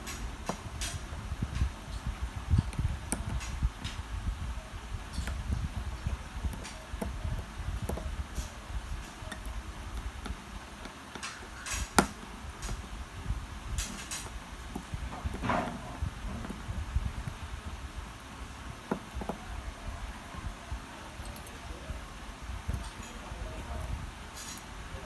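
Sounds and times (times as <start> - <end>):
small tools clicking and tapping: 0.0 - 4.1, 5.1 - 13.0, 13.7 - 17.4, 18.2 - 19.5, 22.7 - 24.7
low handling rumble: 12.2 - 25.0.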